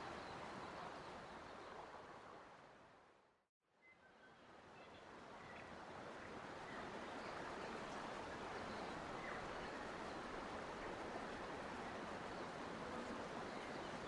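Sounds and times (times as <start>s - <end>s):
flowing water rushing: 5.2s - 14.0s.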